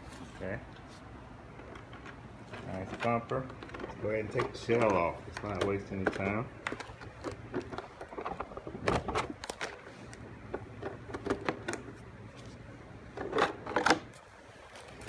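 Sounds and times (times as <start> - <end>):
hard plastic clicking and knocking: 1.6 - 9.8, 10.5 - 11.9.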